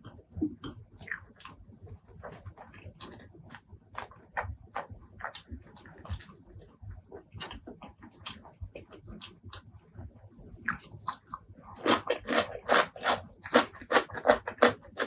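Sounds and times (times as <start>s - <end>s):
loud rapid chewing: 10.7s - 15.0s.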